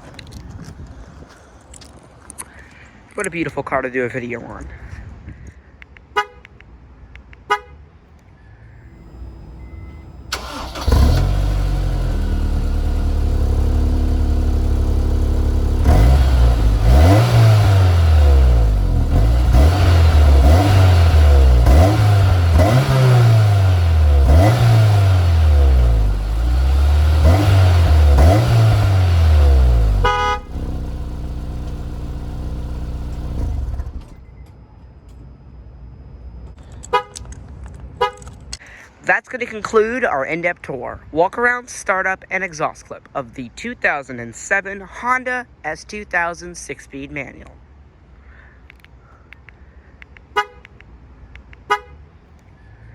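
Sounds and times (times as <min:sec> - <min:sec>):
sharp clicks: 0:05.8 - 0:07.5, 0:48.6 - 0:51.7
car engine idling and revving: 0:08.2 - 0:34.5.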